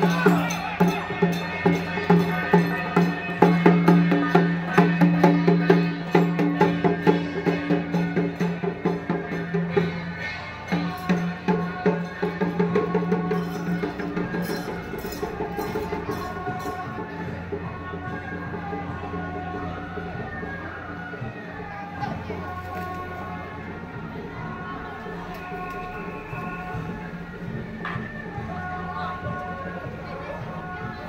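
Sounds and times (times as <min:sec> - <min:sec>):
wood-block and drum beat: 0:00.0 - 0:18.1.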